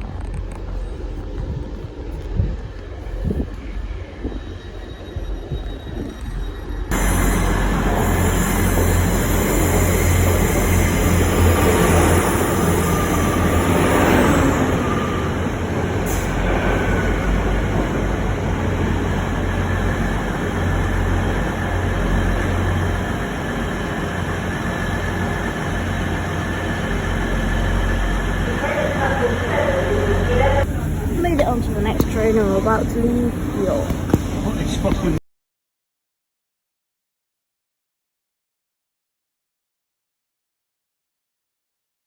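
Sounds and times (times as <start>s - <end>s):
train rumble and hiss: 0.0s - 35.2s.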